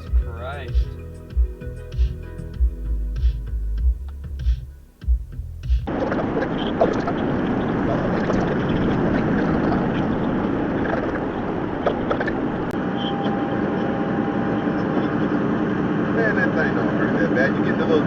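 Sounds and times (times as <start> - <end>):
music: 0.0 - 5.9
car road and engine noise: 0.0 - 18.0.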